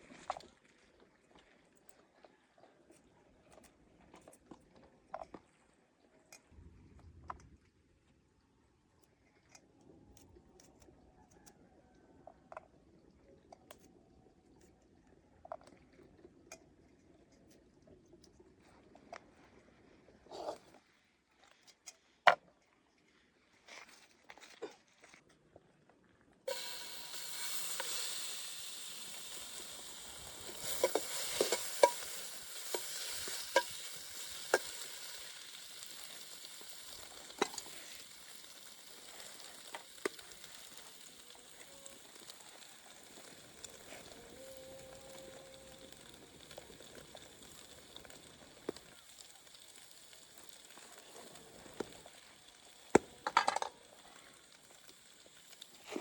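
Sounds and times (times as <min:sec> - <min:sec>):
fat sizzling in a pan: 0:26.5 - 0:56.0.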